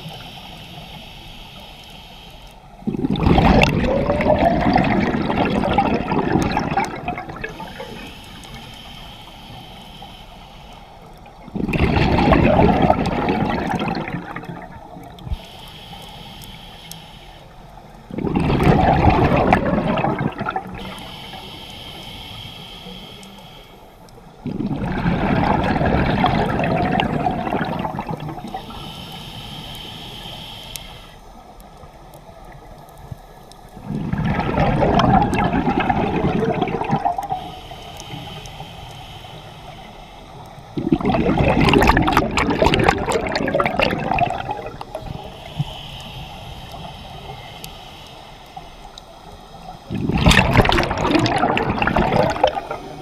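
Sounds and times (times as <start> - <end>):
regulator inhaling hiss: 0.0 - 2.9, 7.2 - 11.5, 13.1 - 18.1, 20.7 - 24.4, 27.8 - 34.1, 36.8 - 40.8, 44.3 - 50.0, 51.9 - 53.0
exhaled bubbles gushing: 2.8 - 8.7, 11.3 - 15.4, 18.1 - 21.1, 24.4 - 28.8, 33.8 - 38.1, 40.5 - 45.7, 49.9 - 53.0.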